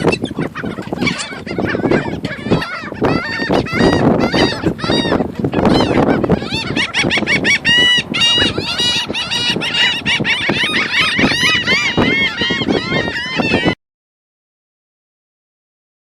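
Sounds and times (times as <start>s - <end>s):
gulls squawking: 0.0s - 13.8s.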